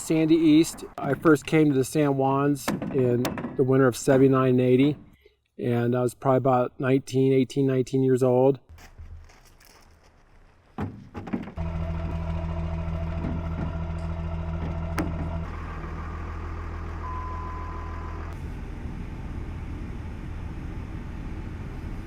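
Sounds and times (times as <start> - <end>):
vehicle engine droning: 11.6 - 22.0.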